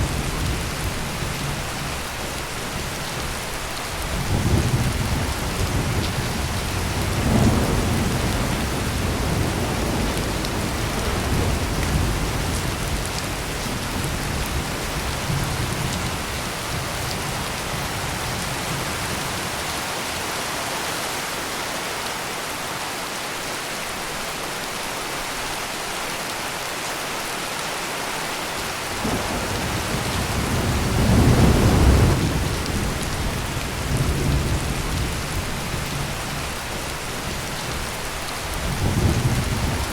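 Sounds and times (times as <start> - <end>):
heavy rain pouring: 0.0 - 39.9
rolling thunder: 4.0 - 19.1, 29.0 - 36.5, 38.5 - 39.9.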